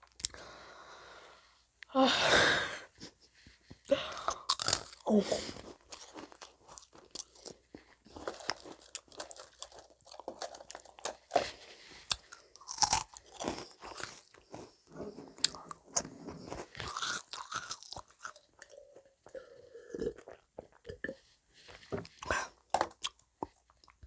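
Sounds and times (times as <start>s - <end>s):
crunching and chewing cookies: 0.0s - 0.7s, 3.0s - 24.0s.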